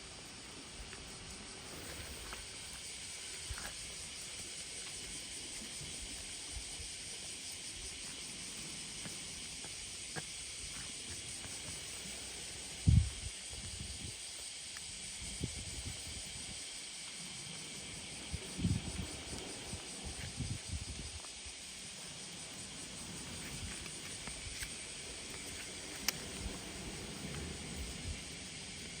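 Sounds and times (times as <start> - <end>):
outdoor summer ambience hiss: 0.0 - 29.0
faint ticks: 22.5 - 29.0.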